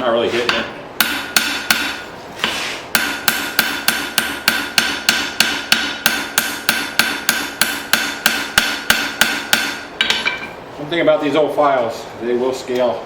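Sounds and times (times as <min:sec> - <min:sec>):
hammer striking steel on anvil: 0:00.4 - 0:02.1, 0:02.9 - 0:10.5
anvil ringing: 0:03.0 - 0:10.5.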